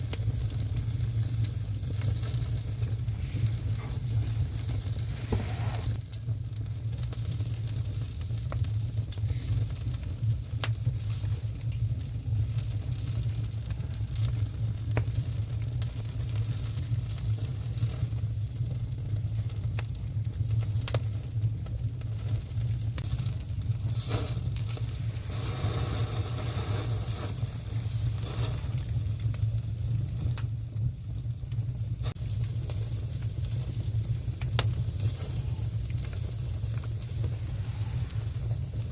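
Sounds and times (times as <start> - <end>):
meat sizzling on a grill: 0.0 - 38.9
steady low rumble: 0.7 - 6.8.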